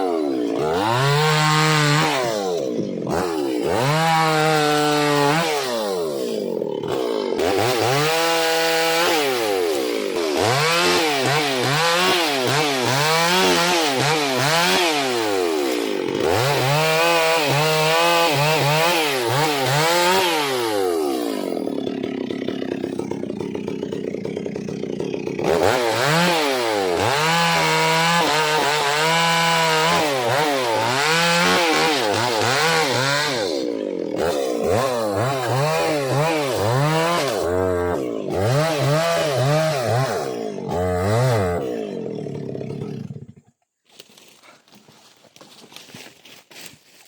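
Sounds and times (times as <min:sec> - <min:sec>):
chainsaw revving: 0:00.0 - 0:43.6.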